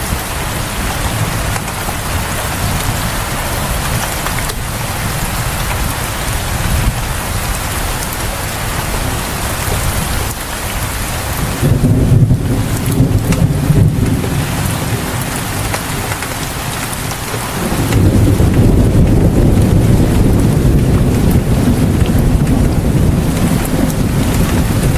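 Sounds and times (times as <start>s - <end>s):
steady rain falling: 0.0s - 24.9s
thunder rumbling: 0.0s - 24.9s.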